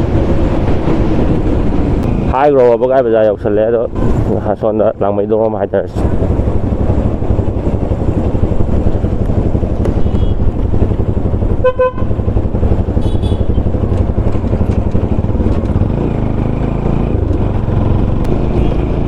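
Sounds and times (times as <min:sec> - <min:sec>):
motorcycle engine: 0:00.0 - 0:03.1, 0:06.0 - 0:19.0
road noise: 0:00.0 - 0:19.0
vehicle horn honk: 0:10.0 - 0:10.4, 0:11.6 - 0:12.1, 0:13.0 - 0:13.6.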